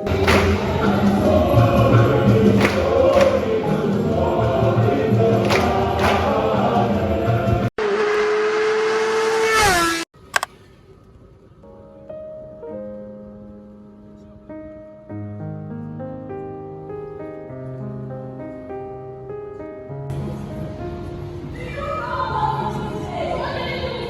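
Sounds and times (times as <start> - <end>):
choir singing: 0.0 - 7.8, 21.7 - 24.0.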